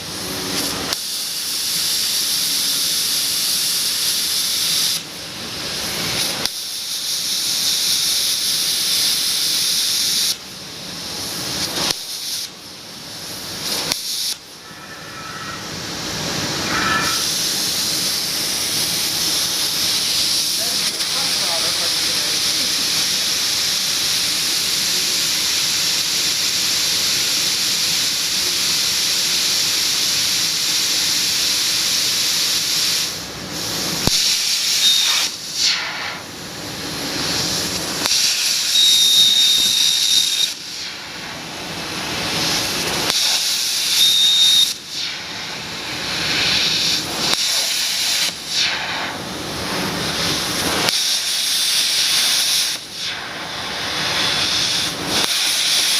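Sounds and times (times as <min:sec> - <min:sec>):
plasma torch cutting hiss: 0:00.0 - 0:55.9
short high whistle: 0:14.0 - 0:18.1, 0:34.2 - 0:36.0, 0:38.2 - 0:40.6, 0:43.2 - 0:44.8.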